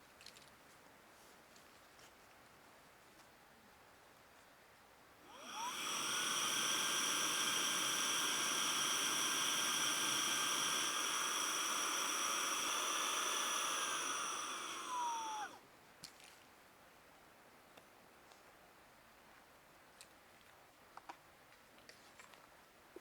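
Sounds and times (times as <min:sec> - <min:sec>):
electric blower whining: 0:05.3 - 0:15.6.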